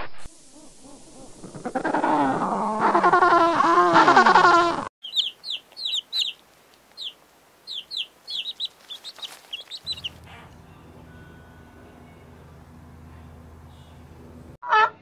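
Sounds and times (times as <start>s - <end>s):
chicks peeping: 4.2s - 10.6s.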